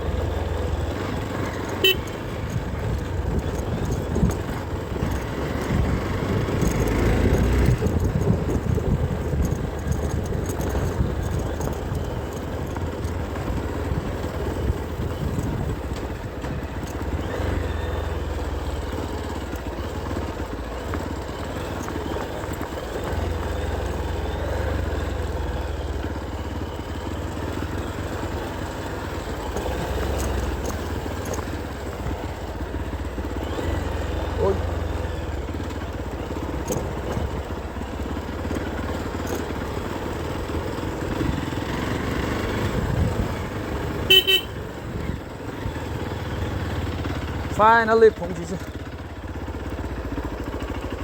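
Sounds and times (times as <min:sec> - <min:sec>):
outdoor noise: 0:00.0 - 0:51.0
vehicle engine rumbling: 0:00.0 - 0:51.0.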